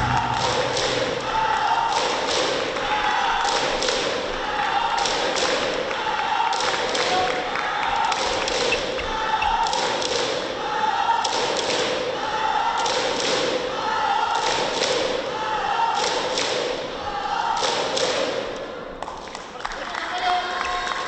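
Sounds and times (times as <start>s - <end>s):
crowd chanting: 0.0s - 18.5s
clapping: 0.1s - 4.2s, 5.0s - 8.9s, 16.0s - 16.6s, 19.0s - 21.0s.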